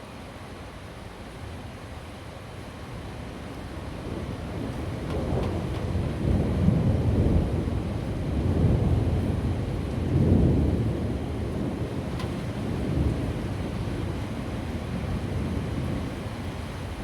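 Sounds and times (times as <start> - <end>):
steady rain: 0.0 - 17.0
thunder rumbling: 4.6 - 14.2.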